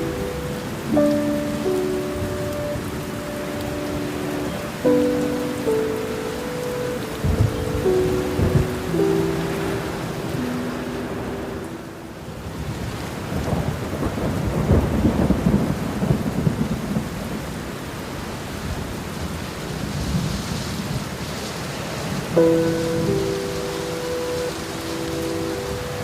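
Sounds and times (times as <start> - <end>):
held music notes: 0.0 - 12.4, 22.4 - 26.0
steady rain: 0.0 - 26.0
thunder rolling: 7.2 - 11.5, 12.6 - 17.5.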